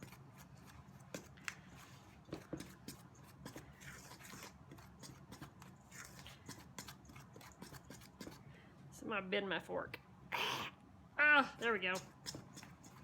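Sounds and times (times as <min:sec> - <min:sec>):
fork tines scraping a bowl: 0:00.0 - 0:08.4, 0:11.6 - 0:13.0.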